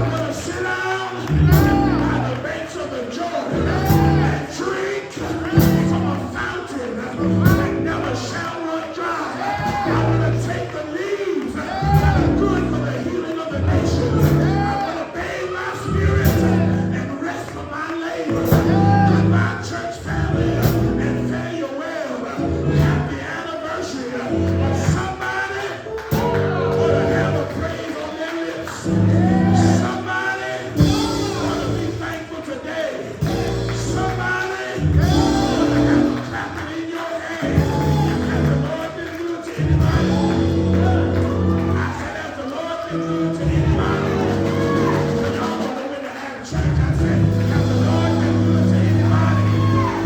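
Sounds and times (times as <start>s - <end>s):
choir singing: 0.0s - 17.5s, 18.1s - 50.0s
bass line: 1.3s - 2.4s, 3.6s - 4.5s, 5.4s - 6.3s, 7.2s - 8.2s, 11.8s - 13.0s, 13.6s - 14.8s, 15.9s - 17.1s, 18.4s - 21.4s, 22.4s - 23.1s, 26.2s - 27.6s, 28.9s - 30.0s, 30.8s - 32.1s, 33.2s - 36.4s, 37.4s - 38.8s, 39.6s - 42.0s, 43.1s - 45.6s, 46.6s - 50.0s
person singing: 28.9s - 50.0s
live band playing upbeat song: 34.8s - 36.6s, 39.6s - 41.8s, 43.0s - 45.9s.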